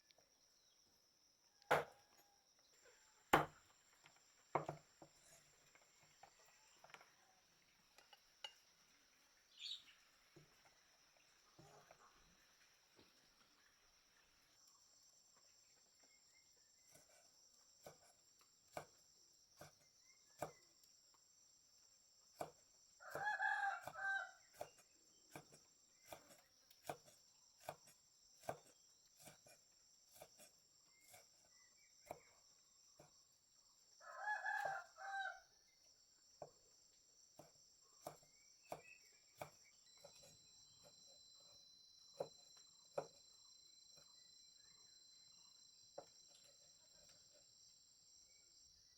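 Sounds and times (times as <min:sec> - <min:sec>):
rooster crowing: 0:23.0 - 0:24.4, 0:34.0 - 0:35.5.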